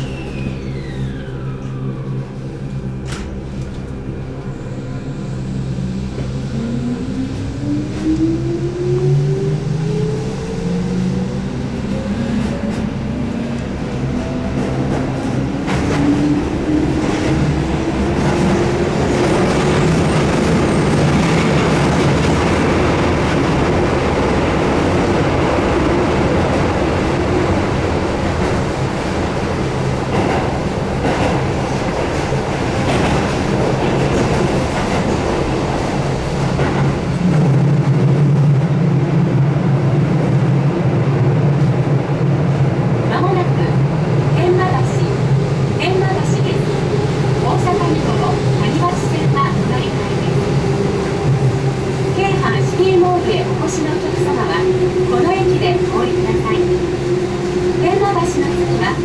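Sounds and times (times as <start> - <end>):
electric train motors whining: 0.0 - 37.7
loud low hum: 0.0 - 41.0.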